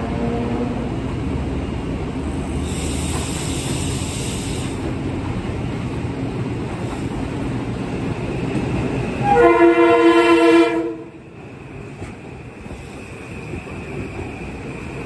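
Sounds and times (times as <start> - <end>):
train wheels rumbling on rail: 0.0 - 15.0
high hiss: 2.5 - 5.0.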